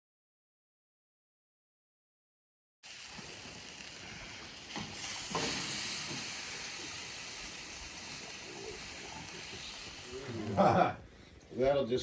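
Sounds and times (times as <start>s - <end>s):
steady hissing rush: 2.9s - 11.1s.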